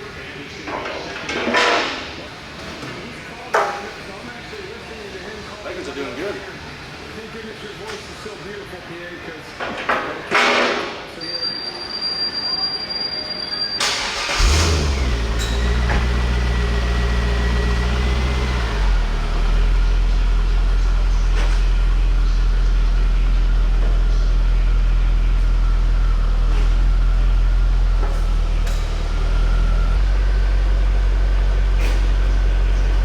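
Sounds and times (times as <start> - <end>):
car engine cranking: 13.8 - 33.0
car engine idling: 13.8 - 33.0.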